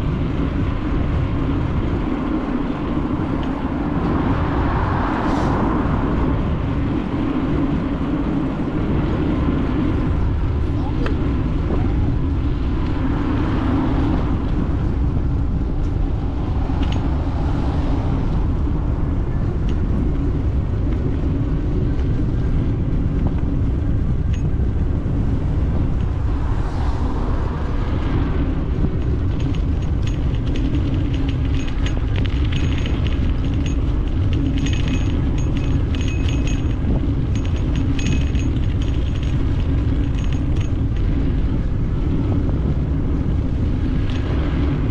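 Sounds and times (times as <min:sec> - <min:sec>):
bicycle tyre noise: 0:00.0 - 0:44.9
wind buffeting microphone: 0:00.0 - 0:44.9
rapid light ticking: 0:28.9 - 0:41.5.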